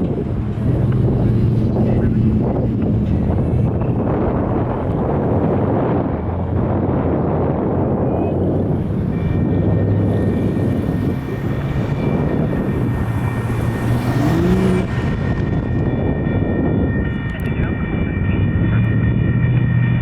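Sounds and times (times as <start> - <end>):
road traffic passing: 0.0 - 20.0
steady high-pitched tone: 7.4 - 20.0.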